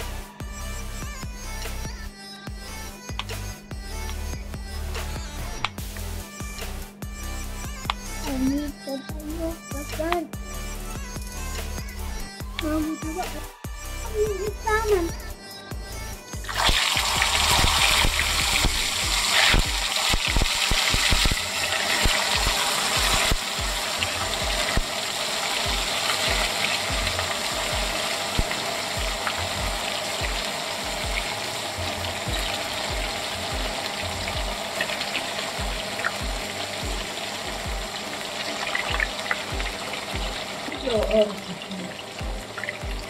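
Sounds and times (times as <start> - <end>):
food sizzling in hot oil: 16.4 - 43.0.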